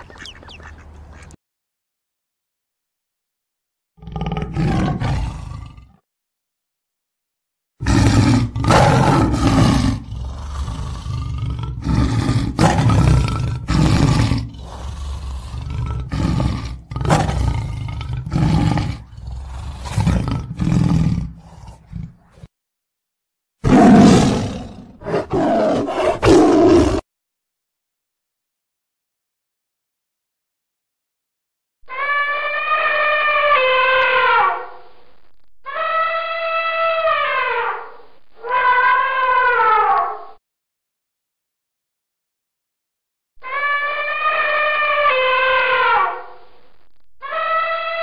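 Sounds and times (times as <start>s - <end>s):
tiger roaring: 4.0s - 6.0s, 7.8s - 22.5s, 23.6s - 27.0s.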